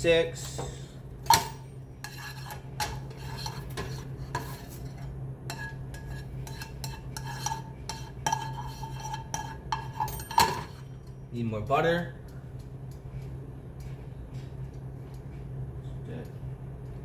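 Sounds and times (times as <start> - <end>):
steady low hum: 0.0 - 17.0
utensil clinking against cookware: 1.3 - 11.2.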